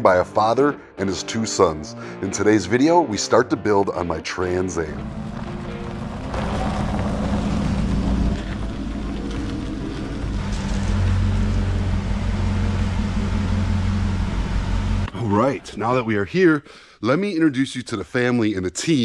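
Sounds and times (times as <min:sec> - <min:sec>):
car engine running at low revs: 0:04.9 - 0:15.2.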